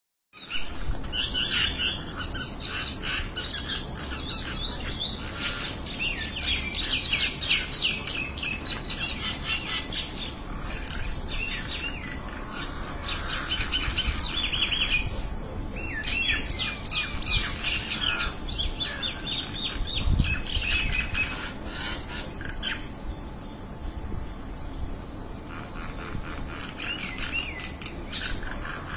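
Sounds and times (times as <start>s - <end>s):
birds chirping: 0.4s - 28.9s.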